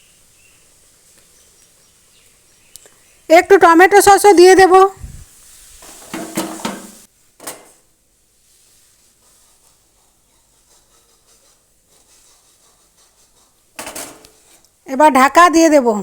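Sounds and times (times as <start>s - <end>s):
utensil scraping a pan: 5.4s - 7.8s, 8.4s - 14.7s
knock on a pan: 6.1s - 7.7s.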